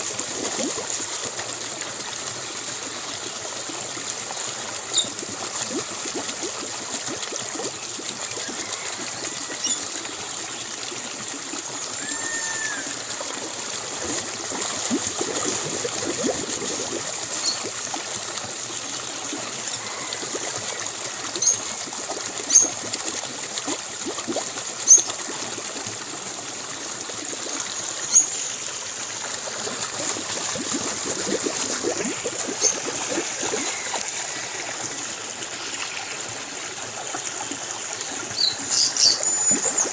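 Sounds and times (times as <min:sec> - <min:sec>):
stream trickling: 0:00.0 - 0:39.9
bird calls: 0:38.4 - 0:39.9.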